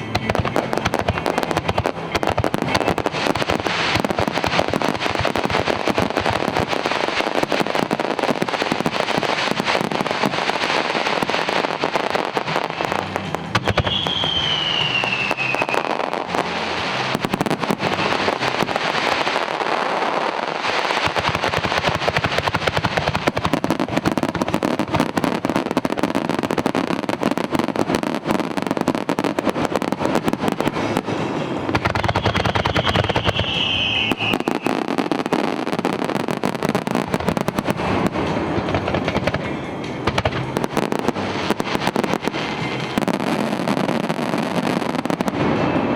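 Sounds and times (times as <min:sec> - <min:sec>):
fireworks bangs and crackling: 0:00.0 - 0:45.9
falling whistle: 0:13.7 - 0:15.8, 0:32.6 - 0:34.8.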